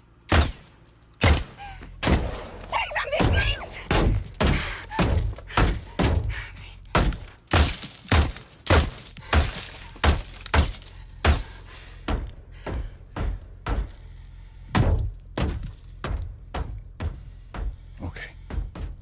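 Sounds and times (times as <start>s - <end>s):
gunfire hitting glass: 0.3s - 11.7s
glass cracking: 7.5s - 11.6s.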